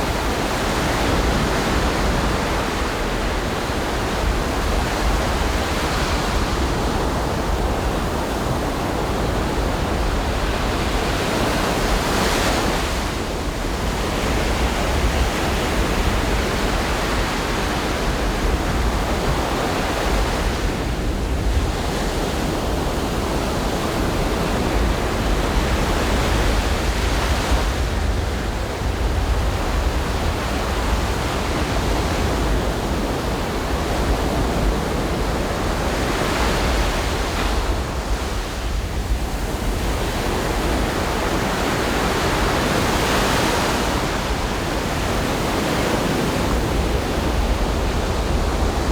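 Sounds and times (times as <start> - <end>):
ocean surf washing onto beach: 0.0 - 48.9
wind rumble on microphone: 0.0 - 48.9.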